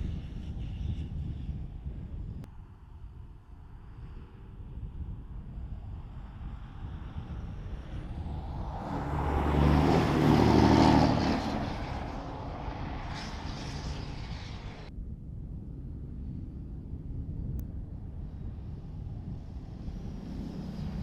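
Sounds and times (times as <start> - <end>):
diesel engine rumbling: 7.7 - 14.9.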